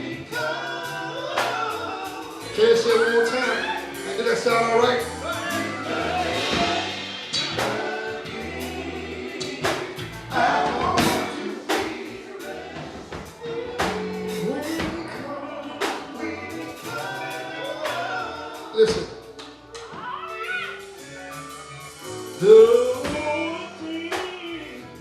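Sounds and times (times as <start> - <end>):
drum hits: 0.0 - 18.2, 22.0 - 23.5
gospel group singing: 0.0 - 25.0
live band playing: 0.0 - 25.0.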